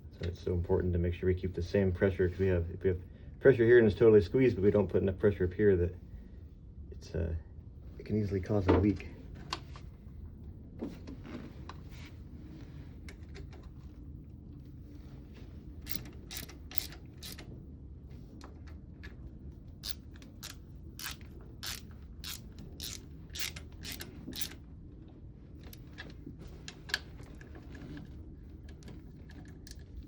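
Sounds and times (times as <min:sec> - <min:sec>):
hand ratchet clicking: 0:15.9 - 0:17.4, 0:19.8 - 0:24.6.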